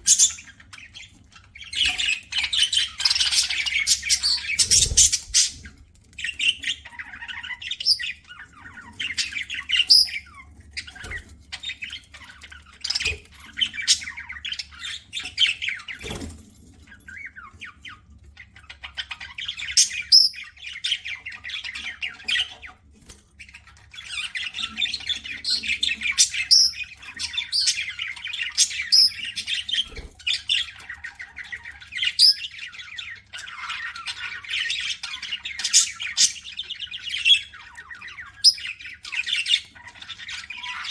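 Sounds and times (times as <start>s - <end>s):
budgerigars chirping and squawking: 0.0s - 40.9s.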